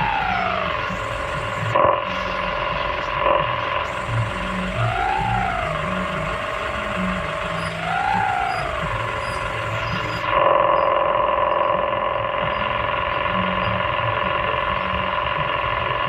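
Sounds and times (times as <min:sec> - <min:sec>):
excavator mechanical whine: 0:00.0 - 0:16.0.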